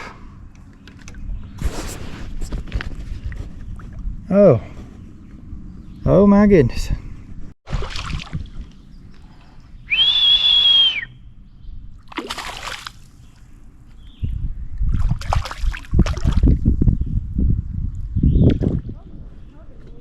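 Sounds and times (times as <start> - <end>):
water splashing and sloshing: 0.0 - 4.2, 7.6 - 9.8, 11.9 - 13.6, 14.8 - 16.6
high whistle: 9.9 - 11.2.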